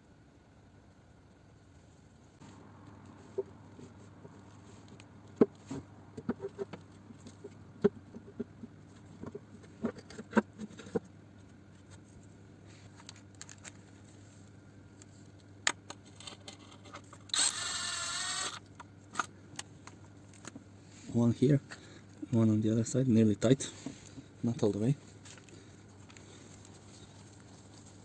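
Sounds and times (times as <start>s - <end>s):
power driver whirring: 17.3s - 18.7s.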